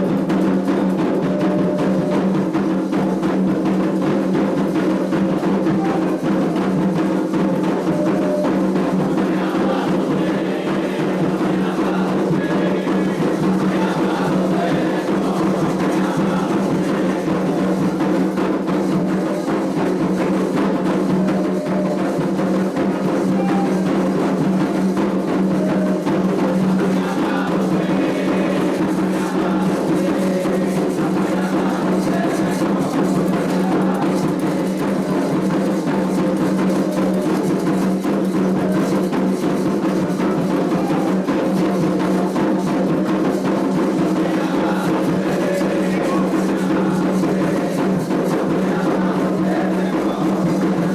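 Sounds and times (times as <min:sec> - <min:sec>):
hand drums playing: 0:00.0 - 0:50.9.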